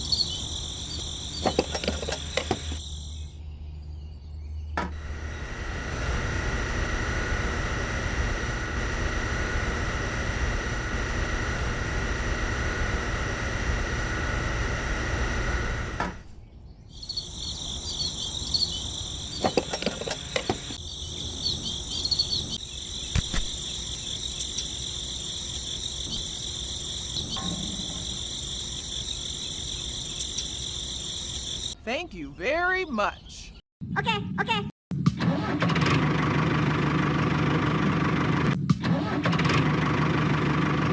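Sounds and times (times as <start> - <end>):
small electric motor humming: 0.0 - 2.9, 4.9 - 16.2, 17.0 - 31.8
crickets chirring: 0.0 - 3.4, 16.9 - 31.8.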